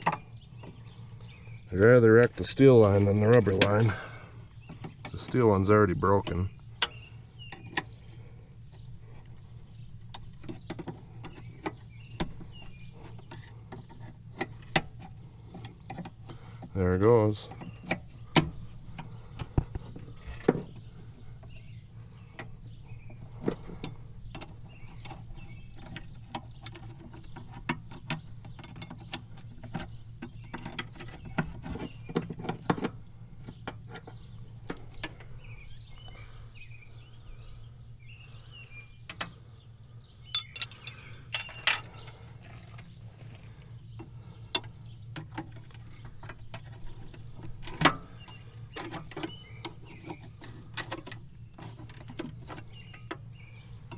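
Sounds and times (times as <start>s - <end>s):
steady low hum: 0.0s - 53.9s
hand tools clicking on metal fittings: 40.3s - 42.2s.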